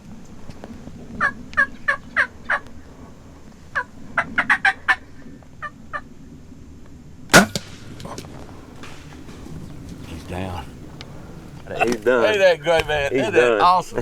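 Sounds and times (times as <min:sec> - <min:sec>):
turkeys gobbling: 0:03.8 - 0:06.0, 0:07.3 - 0:13.2
crossbow shot crack: 0:07.3 - 0:12.1.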